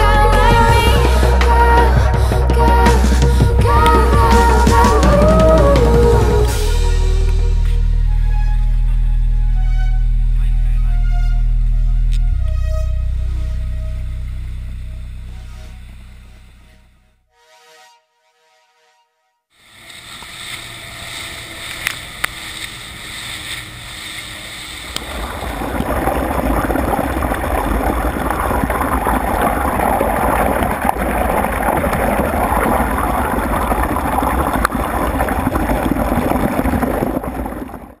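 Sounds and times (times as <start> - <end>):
boat rushing through water: 0.0 - 7.5, 19.7 - 38.0
low rumble: 0.0 - 17.3, 19.8 - 38.0
wind on microphone: 20.0 - 38.0.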